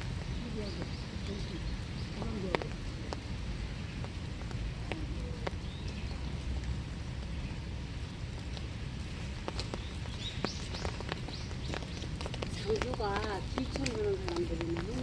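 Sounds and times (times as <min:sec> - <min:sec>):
rain falling in woodland: 0:00.0 - 0:15.0
drops ticking on surfaces: 0:09.4 - 0:15.0.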